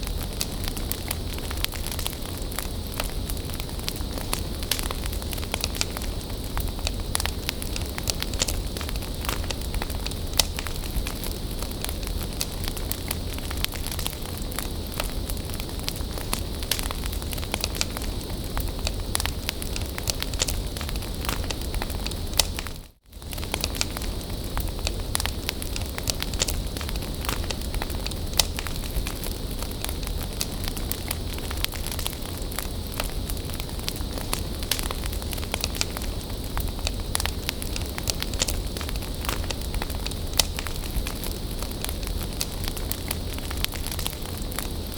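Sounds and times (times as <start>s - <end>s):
bonfire crackling and hissing: 0.0s - 44.9s.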